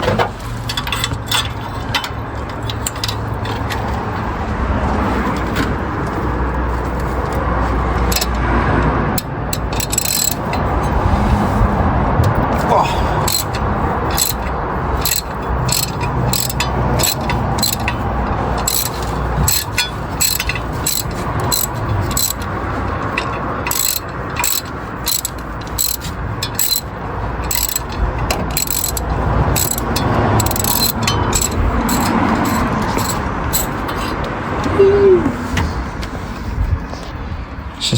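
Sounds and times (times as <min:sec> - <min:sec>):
ratchet wrench clicking: 0:00.6 - 0:03.9, 0:08.0 - 0:08.4, 0:09.1 - 0:11.4, 0:12.2 - 0:34.3.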